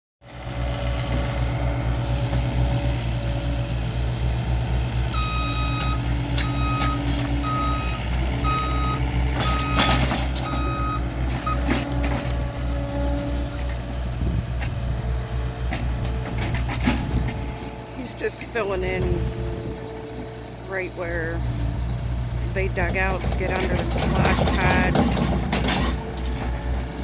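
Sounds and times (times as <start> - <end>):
earthmoving machine engine: 0.3 - 27.0
reversing alarm beeping: 5.1 - 13.7.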